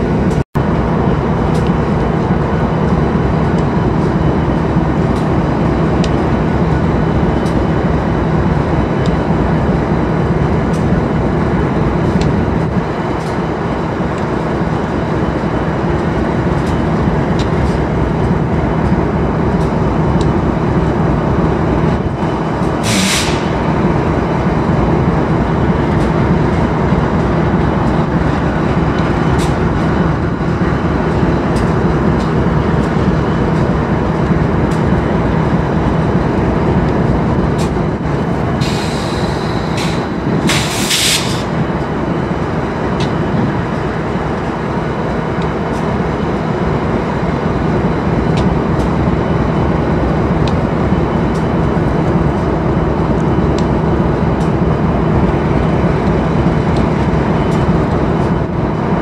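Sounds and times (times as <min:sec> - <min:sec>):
diesel locomotive idling: 0:00.0 - 0:59.0
air hissing: 0:22.7 - 0:23.8, 0:38.6 - 0:41.6.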